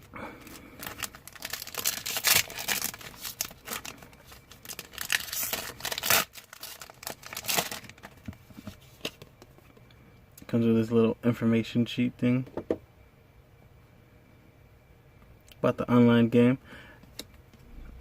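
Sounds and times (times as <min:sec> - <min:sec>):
foil wrapper tearing and crinkling: 0:00.4 - 0:08.2.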